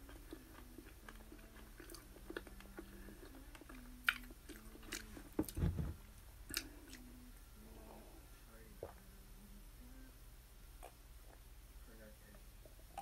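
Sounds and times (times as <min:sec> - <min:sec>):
chewing and biting food: 0:00.0 - 0:05.1
low thump: 0:05.4 - 0:06.0.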